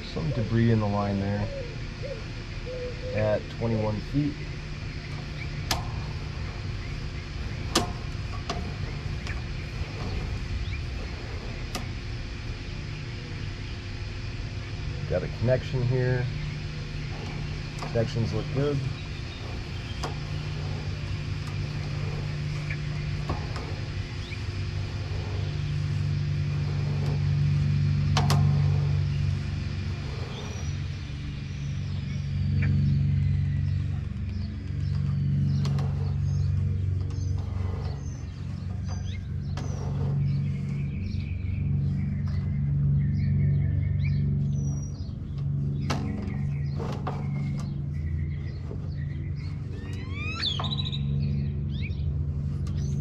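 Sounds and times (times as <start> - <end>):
low machine hum: 0.0 - 53.0
low rumble: 0.0 - 53.0.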